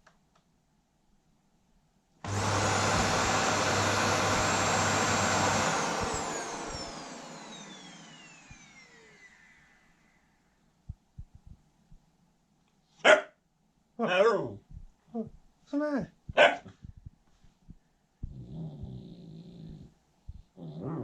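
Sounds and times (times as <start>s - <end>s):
vacuum cleaner motor whine: 2.2s - 10.5s.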